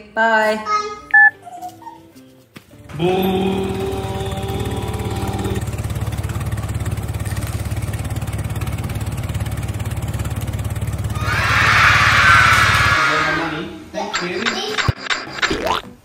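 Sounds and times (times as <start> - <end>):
lawn tractor engine running: 2.9 - 12.9.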